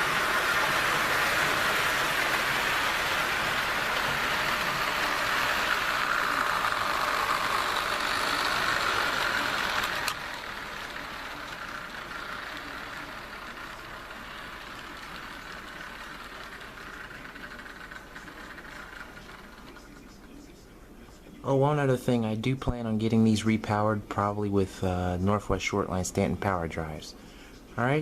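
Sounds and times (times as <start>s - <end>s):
model train motor whine: 0.0s - 20.3s.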